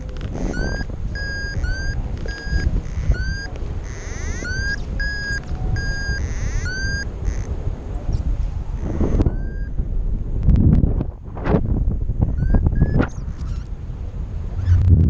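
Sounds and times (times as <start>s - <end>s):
variometer beeping: 0.0s - 9.8s, 12.2s - 13.6s
wind buffeting microphone: 0.0s - 15.0s.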